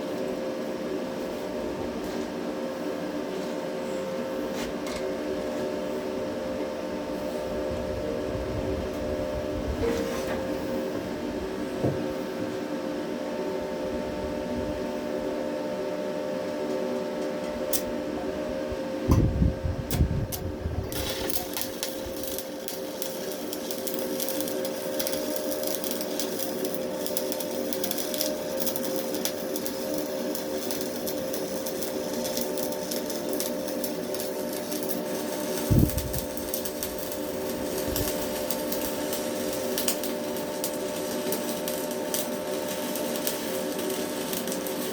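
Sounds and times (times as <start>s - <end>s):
steady hum: 0.0s - 44.9s
welding arc crackling: 19.9s - 44.9s.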